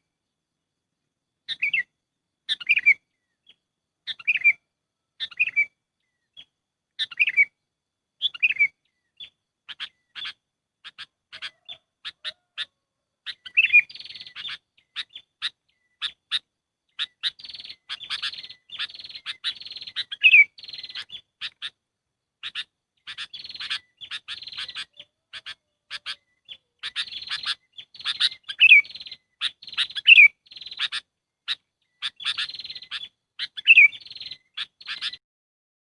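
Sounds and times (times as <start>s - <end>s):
bulbuls chirping and chattering: 8.2s - 21.8s, 22.4s - 35.2s.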